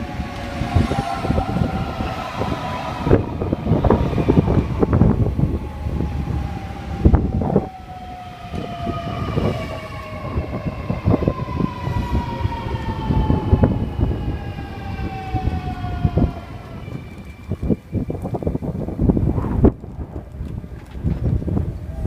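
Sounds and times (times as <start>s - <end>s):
train motors whining: 0.0s - 17.5s
train wheels rumbling and knocking: 0.0s - 22.0s
wind on microphone: 0.0s - 22.0s.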